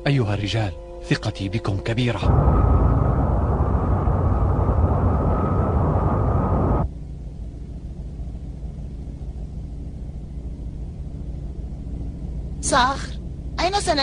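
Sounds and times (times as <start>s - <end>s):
steady low hum: 0.0s - 14.0s
spaceship engine roar: 2.2s - 6.9s.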